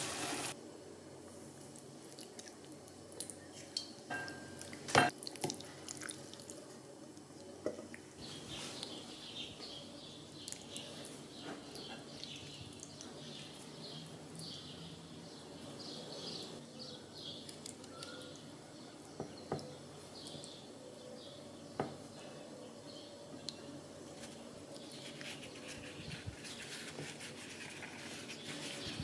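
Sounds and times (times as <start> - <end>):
small birds chirping: 8.2 - 29.0.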